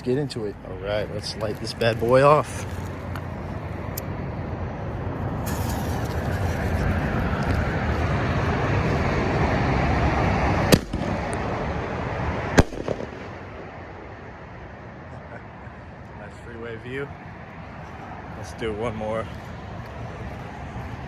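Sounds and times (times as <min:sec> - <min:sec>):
freeway traffic noise: 0:00.0 - 0:21.0
firework hissing: 0:05.3 - 0:10.0
firework bangs: 0:05.3 - 0:11.6, 0:12.4 - 0:13.5.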